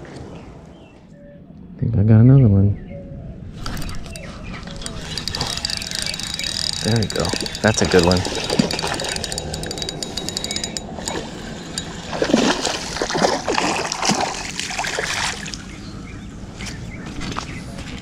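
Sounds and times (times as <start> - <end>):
fishing reel clicking: 3.6 - 13.2
fish splashing in water: 5.0 - 15.8.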